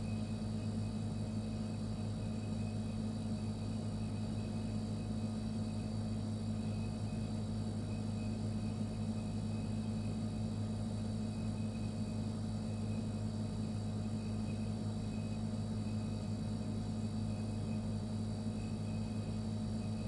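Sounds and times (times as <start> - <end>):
refrigerator humming: 0.0 - 20.0
faint high whine: 11.2 - 20.0.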